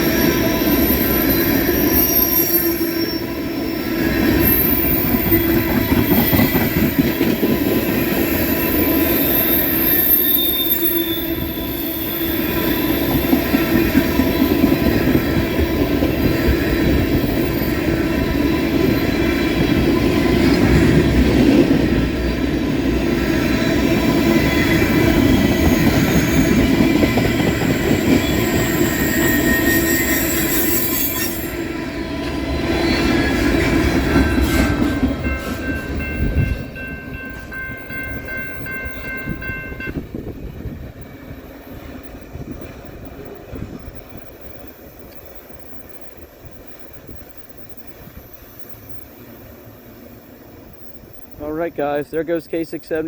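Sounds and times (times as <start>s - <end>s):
high wheel squeal: 0.0s - 19.4s, 23.6s - 31.7s
freight train rumbling past: 0.0s - 53.0s.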